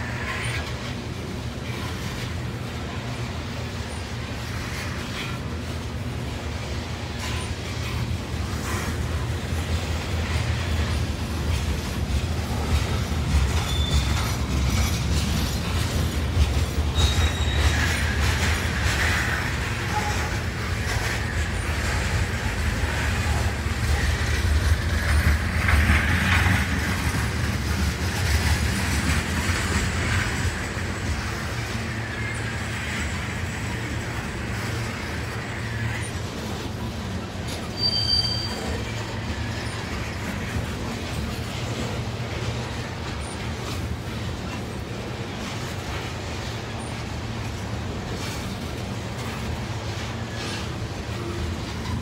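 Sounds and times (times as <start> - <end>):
freight train wheels rumbling: 0.0 - 52.0
wheel screech: 12.5 - 16.1, 16.9 - 26.5, 37.5 - 41.2.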